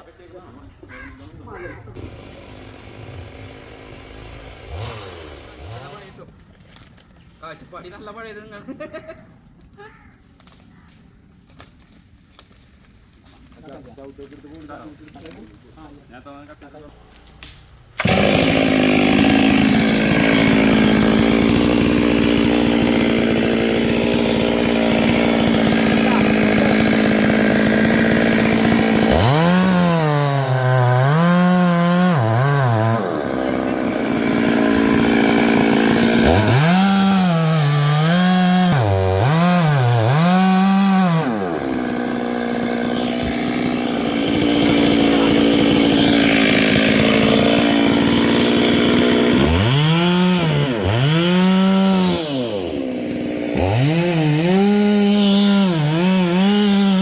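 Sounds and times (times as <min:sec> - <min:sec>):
chainsaw cutting wood: 0:02.0 - 0:06.9, 0:17.0 - 0:57.0.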